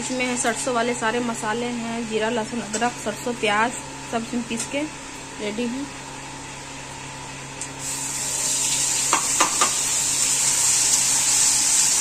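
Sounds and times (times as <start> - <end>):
paste sizzling in hot oil: 7.8 - 12.0.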